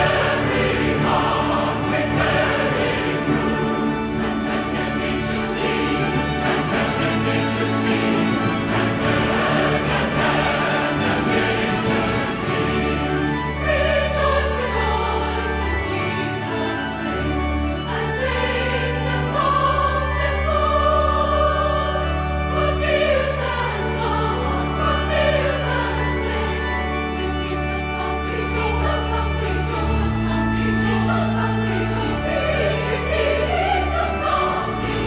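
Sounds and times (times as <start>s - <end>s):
low accompaniment: 0.0s - 14.0s
choir singing held notes: 0.0s - 35.0s.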